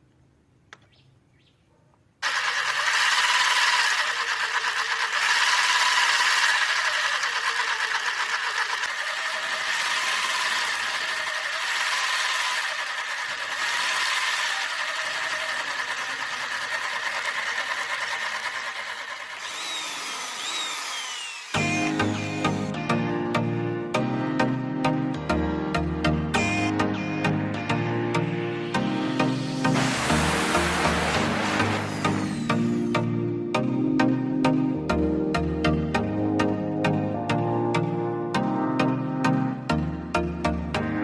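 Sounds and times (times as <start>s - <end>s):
electric motor whirring with rattle: 2.2s - 22.7s, 29.8s - 33.0s
background music: 21.6s - 41.0s.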